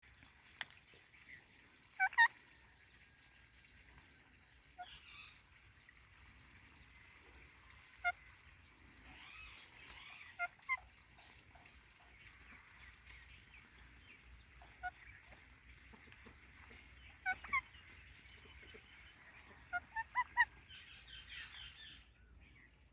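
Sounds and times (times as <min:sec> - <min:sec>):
parakeets warbling chatter: 0:02.0 - 0:02.3, 0:07.9 - 0:11.6, 0:14.2 - 0:22.0
parakeets squawking: 0:09.1 - 0:10.9, 0:16.5 - 0:18.1, 0:19.2 - 0:22.0.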